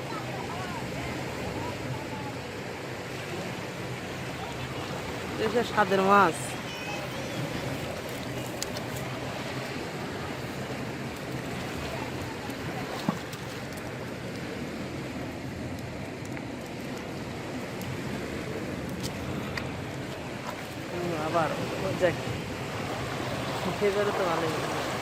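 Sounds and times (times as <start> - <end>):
floodwater rushing: 0.0 - 25.0.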